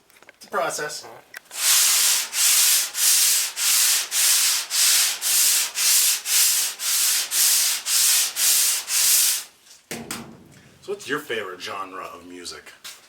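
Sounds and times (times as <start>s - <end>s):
sandpaper rubbing on body filler: 1.5s - 9.5s.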